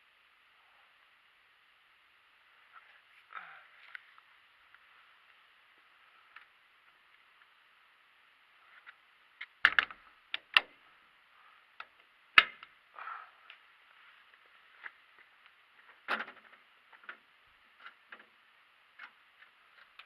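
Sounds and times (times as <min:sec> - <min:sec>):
faint steady hiss: 0:00.0 - 0:20.0
sharp clicks and knocks: 0:09.4 - 0:10.8.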